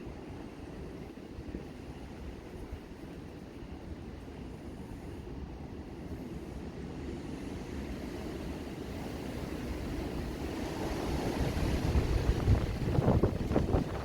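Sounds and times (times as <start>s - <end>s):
wind buffeting microphone: 7.3s - 14.0s.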